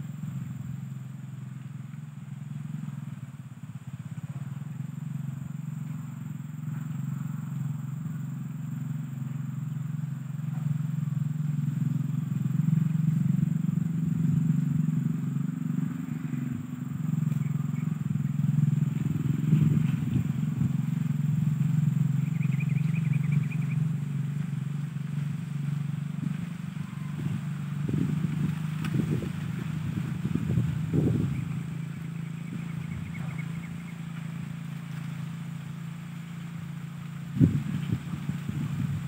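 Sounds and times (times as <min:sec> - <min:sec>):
low engine drone: 0:00.0 - 0:39.0
faint bird trills: 0:14.4 - 0:24.7, 0:26.5 - 0:28.2, 0:30.4 - 0:34.6.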